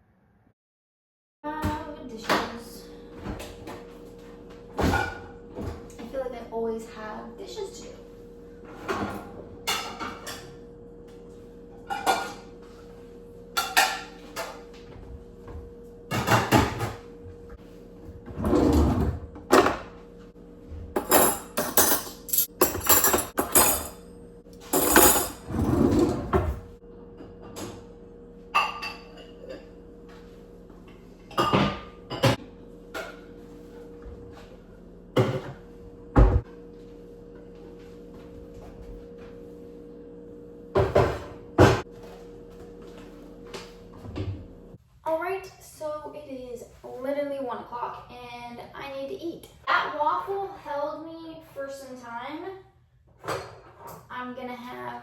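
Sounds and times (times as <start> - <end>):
dishes and utensils clattering: 4.8 - 5.8, 8.7 - 10.6, 11.9 - 12.6, 13.6 - 14.6, 16.1 - 17.0, 21.0 - 24.0, 24.7 - 26.5, 28.6 - 29.7, 31.3 - 32.4.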